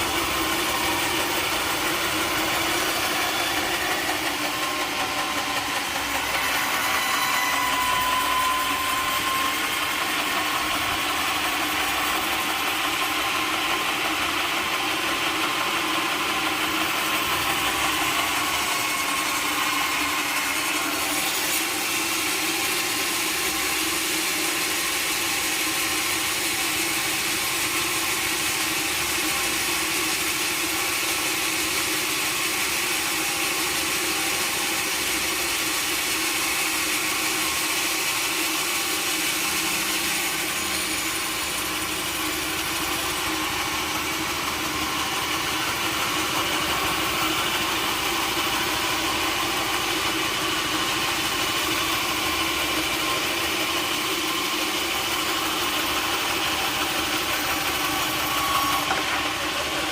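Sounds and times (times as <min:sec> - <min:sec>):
sawmill machinery drone: 0:00.0 - 0:59.9.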